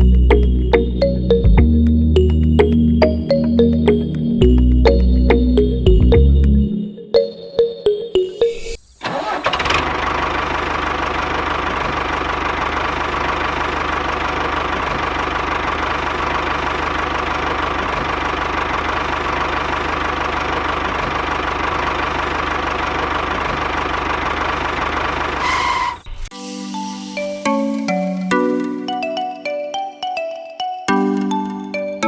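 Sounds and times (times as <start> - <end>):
tractor engine running: 9.0 - 26.3.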